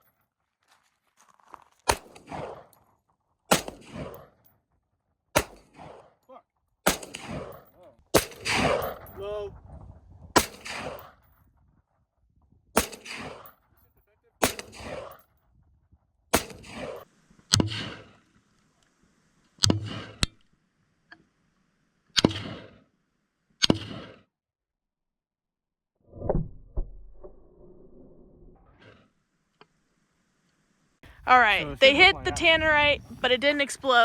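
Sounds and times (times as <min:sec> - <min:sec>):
gunshots with echo: 0:03.5 - 0:04.2, 0:05.4 - 0:06.0, 0:06.9 - 0:09.2, 0:10.4 - 0:11.1, 0:12.8 - 0:13.5, 0:14.4 - 0:15.2, 0:16.4 - 0:17.0.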